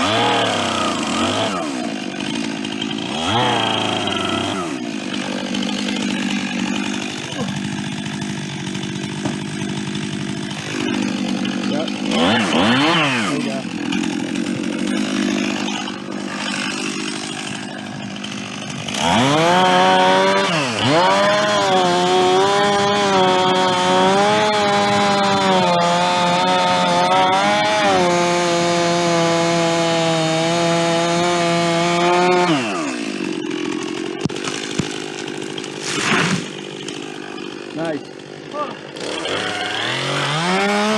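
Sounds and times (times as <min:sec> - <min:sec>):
chainsaw cutting wood: 0:00.0 - 0:40.9
chainsaw idling and revving: 0:00.0 - 0:40.9.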